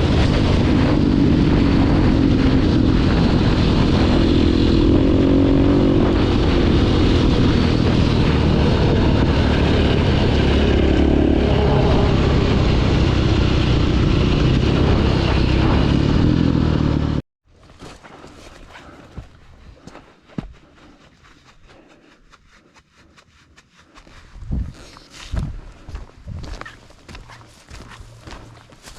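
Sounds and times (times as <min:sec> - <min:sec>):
dirt bike engine running: 0:00.0 - 0:17.2, 0:25.4 - 0:28.9
wind noise: 0:00.0 - 0:17.2, 0:24.1 - 0:28.9.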